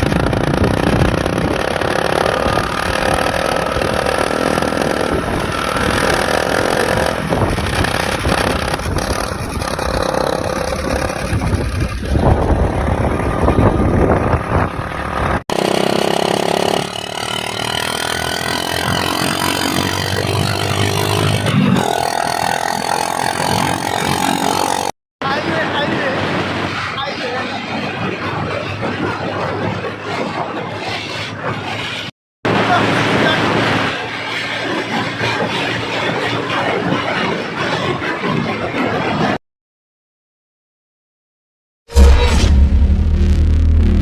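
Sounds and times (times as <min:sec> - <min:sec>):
motorcycle engine revving: 0:00.0 - 0:24.9.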